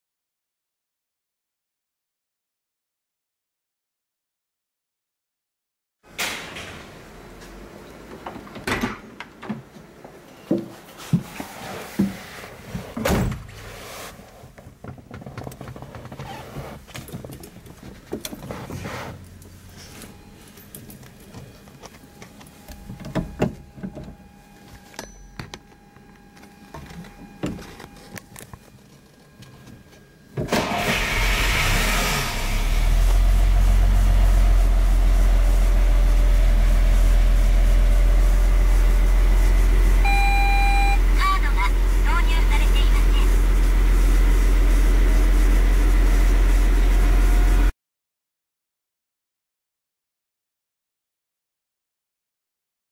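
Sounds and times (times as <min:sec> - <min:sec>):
diesel engine idling: 0:30.6 - 0:47.6.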